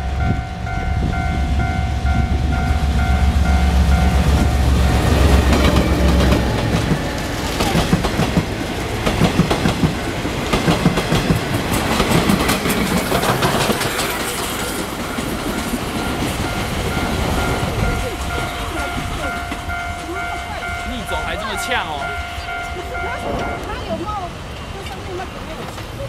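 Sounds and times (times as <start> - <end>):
faint level-crossing warning bell: 0.0 - 7.7, 13.8 - 25.6
diesel locomotive engine passing: 0.0 - 26.0
train wheels clicking over rail joints: 3.4 - 26.0.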